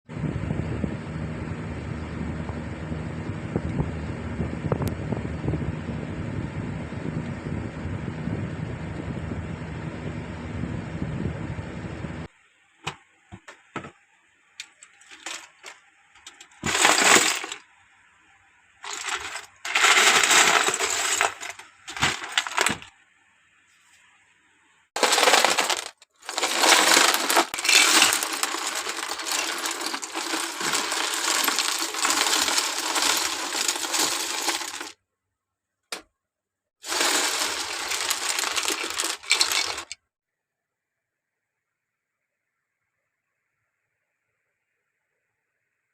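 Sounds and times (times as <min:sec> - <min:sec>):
plastic toy bricks rattling: 0:14.9 - 0:17.6, 0:18.8 - 0:22.9, 0:25.0 - 0:34.9, 0:36.8 - 0:40.0.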